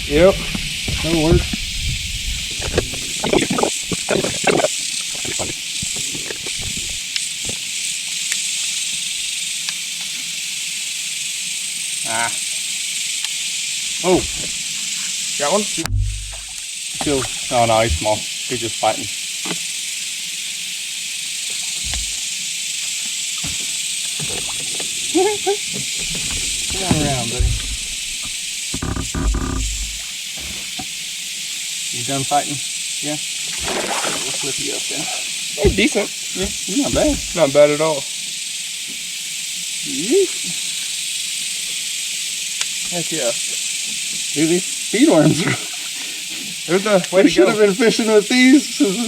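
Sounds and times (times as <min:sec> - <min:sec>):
cicadas droning: 0:00.0 - 0:49.0
steady high hiss: 0:00.0 - 0:49.0
soft low thumps: 0:00.3 - 0:07.0, 0:15.8 - 0:18.2, 0:21.8 - 0:22.2, 0:25.8 - 0:30.1, 0:35.6 - 0:37.4
soft knocks: 0:15.8 - 0:17.1, 0:25.7 - 0:30.6.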